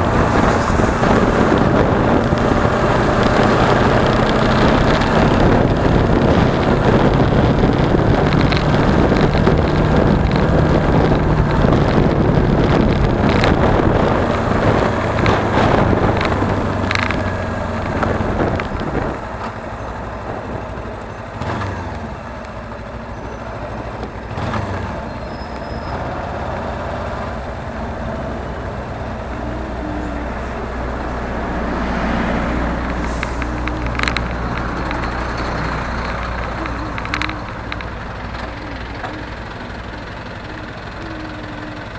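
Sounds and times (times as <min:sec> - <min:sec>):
wind rushing on microphone: 0:00.0 - 0:22.3, 0:26.4 - 0:39.7
motorcycle engine running: 0:00.0 - 0:41.9.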